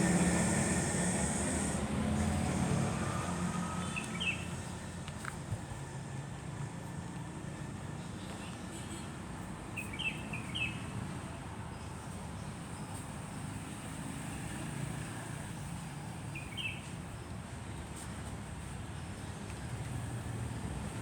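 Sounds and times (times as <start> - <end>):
truck rumbling: 0.0 - 5.0
bird chirps: 9.8 - 10.8.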